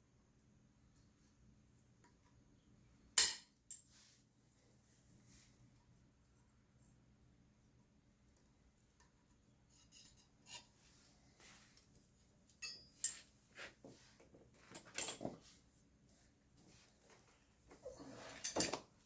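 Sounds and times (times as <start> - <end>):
metal tools clinking and scraping: 12.5 - 13.3, 14.6 - 15.4, 17.9 - 18.9.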